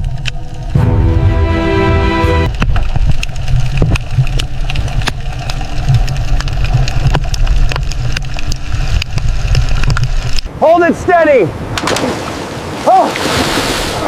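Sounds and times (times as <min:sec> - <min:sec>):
machinery low rumble: 0:00.4 - 0:06.3
held musical chord: 0:00.8 - 0:02.6.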